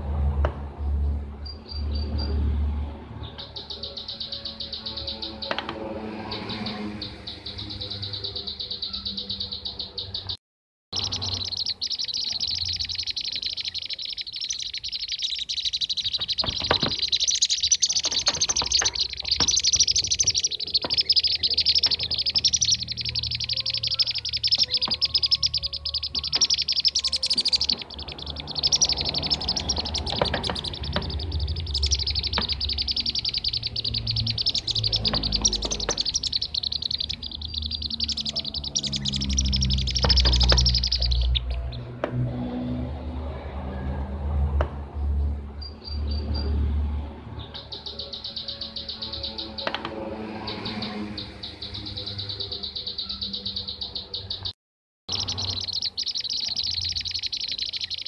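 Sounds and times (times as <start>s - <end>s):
birds chirping in rapid chatter: 0.8s - 10.4s, 11.0s - 43.7s, 44.9s - 58.0s.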